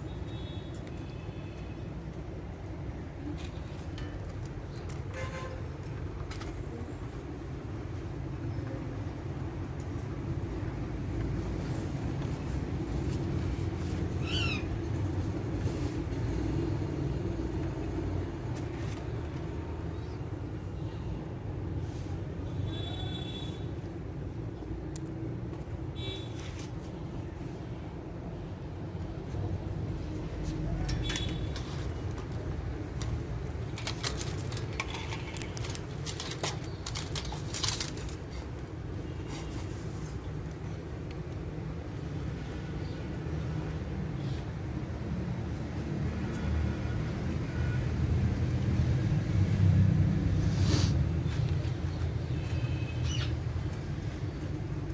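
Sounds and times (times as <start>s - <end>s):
parakeet call: 14.2s - 14.7s
parakeets gnawing wood: 33.0s - 38.5s.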